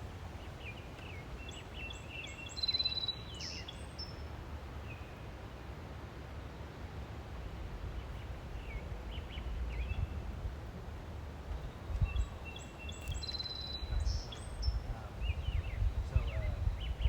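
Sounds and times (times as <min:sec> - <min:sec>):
small birds chirping: 0:00.0 - 0:05.1, 0:11.9 - 0:17.0
songbird phrase with trill: 0:12.9 - 0:17.0.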